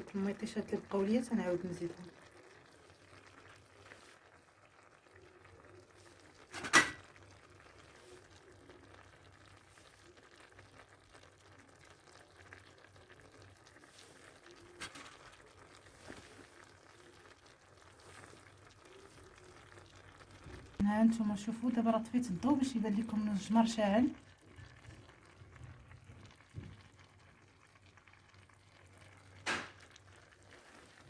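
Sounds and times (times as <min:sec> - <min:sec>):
clay pot simmering and sizzling: 0:00.0 - 0:31.0.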